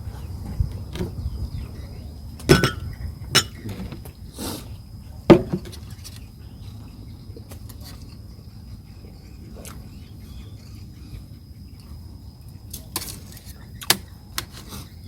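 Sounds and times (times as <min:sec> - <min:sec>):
cutlery clinking on a dish: 0:02.5 - 0:03.8.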